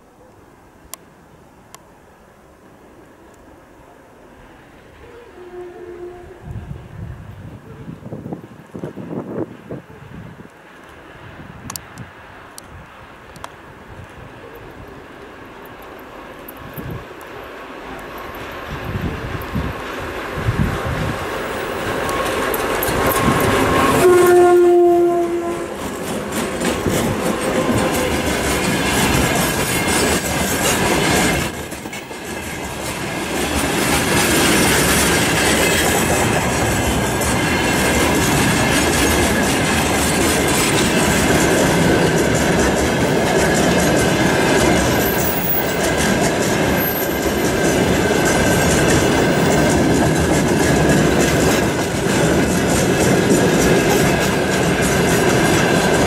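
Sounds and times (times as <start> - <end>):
locomotive horn: 5.1 - 6.8, 22.0 - 26.1
train wheels clacking on rail joints: 15.6 - 56.0.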